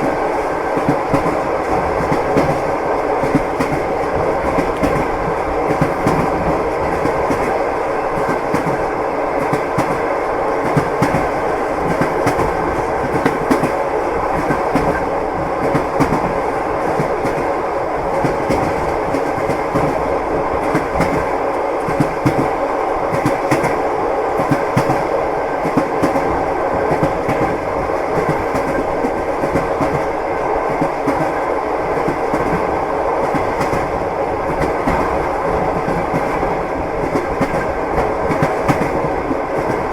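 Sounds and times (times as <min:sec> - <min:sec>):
train rumble inside carriage: 0:00.0 - 0:39.9.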